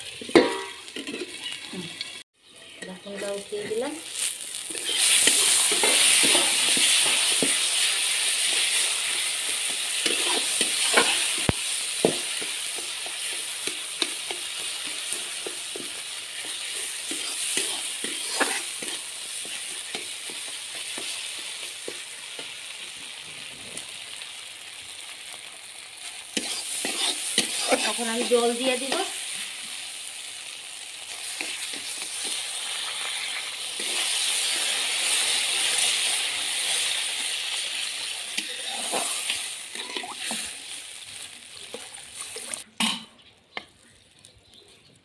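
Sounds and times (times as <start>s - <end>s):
masala sizzling in pan: 0.0s - 44.8s
spatula scraping pan: 2.8s - 21.3s, 26.3s - 29.1s, 31.2s - 36.0s, 38.4s - 40.6s.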